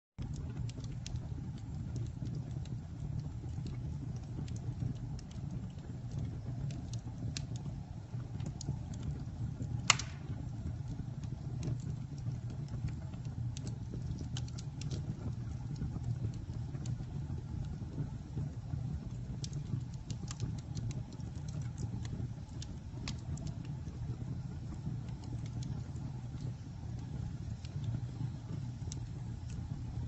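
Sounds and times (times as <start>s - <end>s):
campfire flames rumbling: 0.2s - 30.0s
fire crackling: 0.2s - 30.0s
loud pop from fire: 9.8s - 10.6s.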